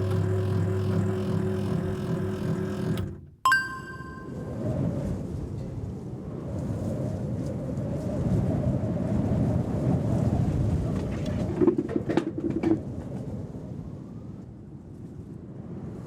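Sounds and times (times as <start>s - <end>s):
low wind rumble: 4.4s - 11.9s.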